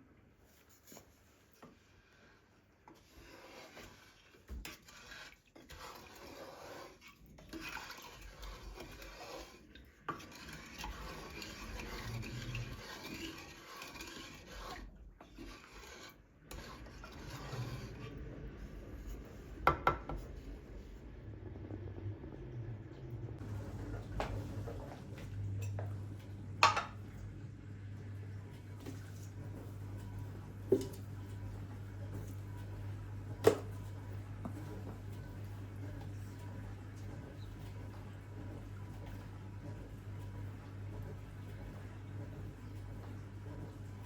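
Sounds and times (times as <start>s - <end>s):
utensils scraping dishes: 2.9s - 18.3s.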